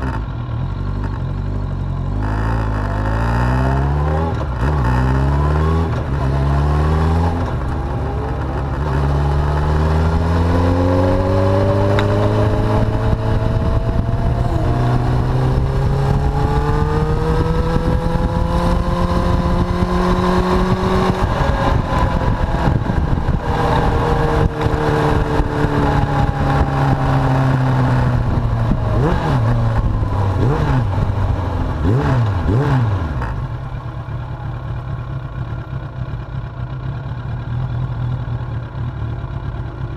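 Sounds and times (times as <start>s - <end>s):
motorcycle engine under way: 0.0s - 39.9s
wind rush: 10.8s - 32.5s.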